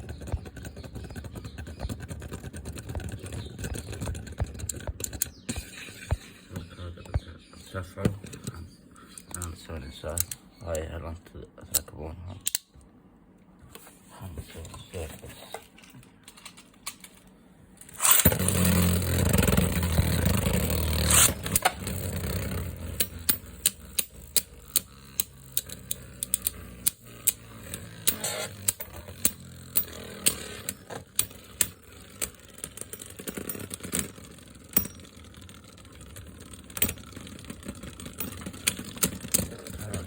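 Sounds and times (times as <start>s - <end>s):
spinning top clicks and knocks: 17.8s - 39.8s
spinning top whirring: 17.8s - 40.0s.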